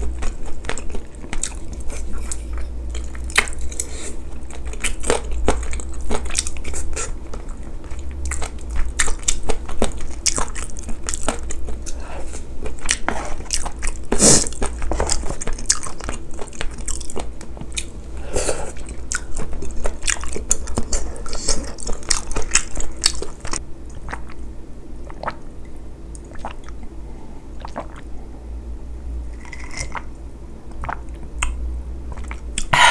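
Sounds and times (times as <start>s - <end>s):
chewing and biting: 0.0s - 18.0s, 18.7s - 24.4s.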